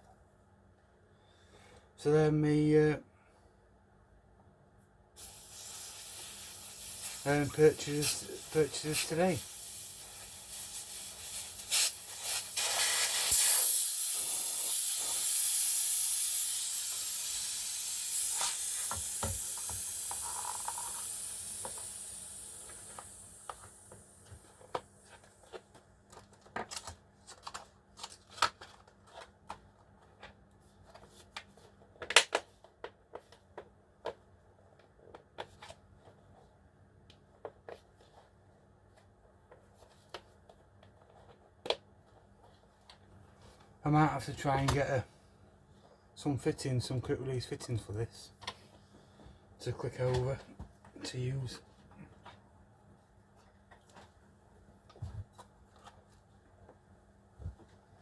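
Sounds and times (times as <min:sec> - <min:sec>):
compressed air hissing: 0:05.2 - 0:25.6.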